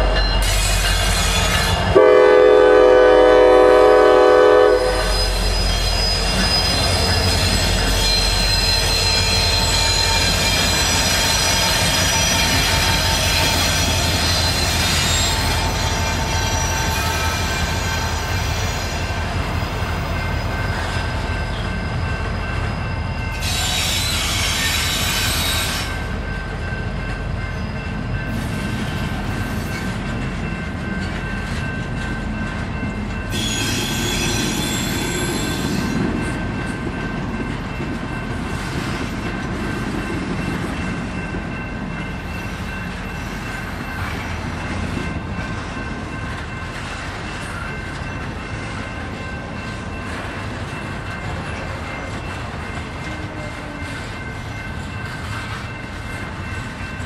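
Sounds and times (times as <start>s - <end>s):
freight train wheels rumbling: 0.0s - 57.0s
high-pitched wheel squeal: 4.8s - 19.1s, 22.7s - 26.0s, 33.3s - 36.0s.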